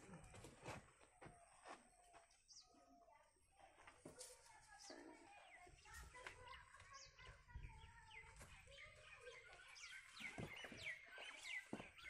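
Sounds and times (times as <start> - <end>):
faint bird chirps: 4.7 - 12.0.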